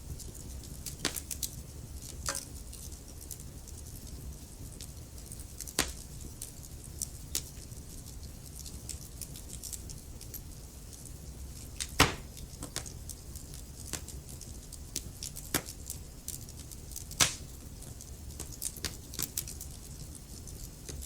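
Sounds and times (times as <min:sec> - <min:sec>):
wood fire crackling: 0:00.0 - 0:21.0
sharp pops of burning wood: 0:00.3 - 0:03.3, 0:04.7 - 0:06.3, 0:11.7 - 0:19.8.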